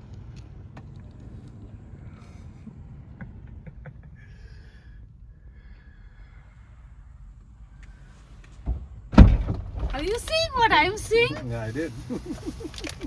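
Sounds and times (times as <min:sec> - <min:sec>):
car rumble from inside cabin: 0:08.7 - 0:11.8.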